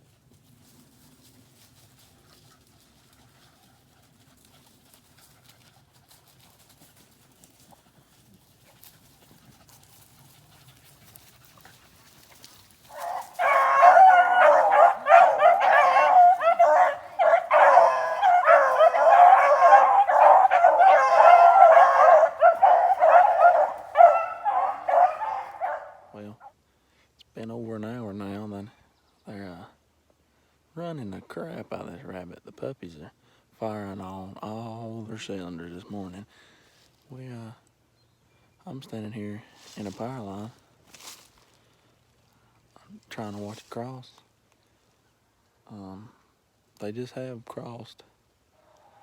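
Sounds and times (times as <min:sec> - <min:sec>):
dogs baying in chorus: 0:12.8 - 0:26.2.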